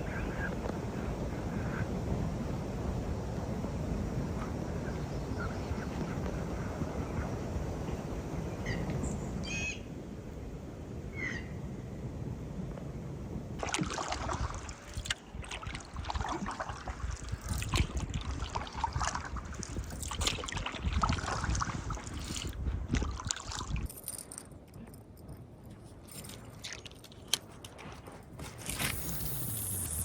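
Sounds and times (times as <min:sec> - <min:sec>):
wind rumbling on microphone: 0:00.0 - 0:30.0
paddle splashing in water: 0:13.6 - 0:23.9.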